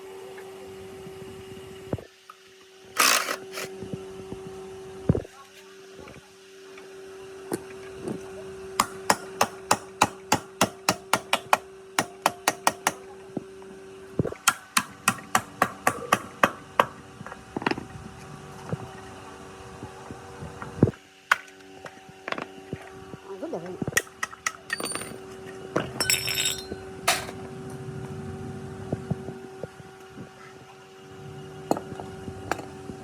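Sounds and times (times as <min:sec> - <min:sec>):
hammer tapping: 0:08.8 - 0:13.0, 0:14.5 - 0:16.9.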